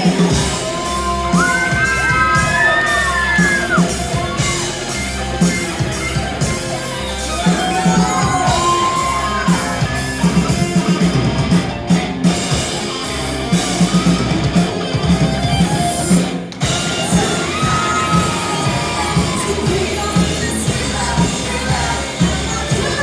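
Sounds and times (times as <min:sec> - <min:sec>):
drums: 0:00.0 - 0:23.0
electric guitar: 0:00.0 - 0:23.0
person singing: 0:16.7 - 0:23.0.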